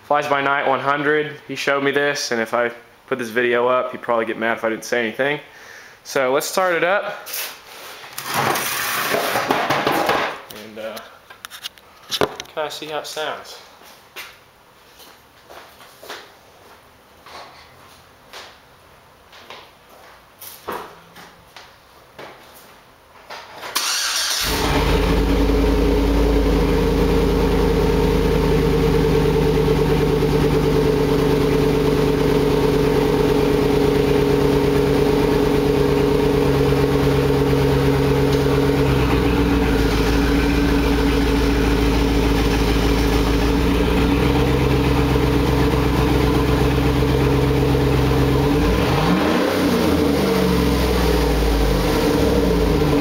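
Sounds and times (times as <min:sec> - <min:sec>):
engine cranking and starting: 0:23.7 - 0:25.4
engine revving: 0:23.8 - 0:53.0
loud engine idling: 0:24.4 - 0:49.1.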